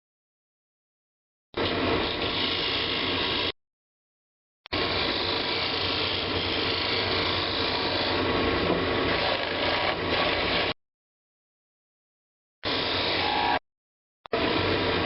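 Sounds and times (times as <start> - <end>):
woodworking lathe spinning: 1.6 - 3.5, 4.8 - 10.8, 12.7 - 13.6
turning tool cutting wood: 1.6 - 3.6, 4.7 - 10.8.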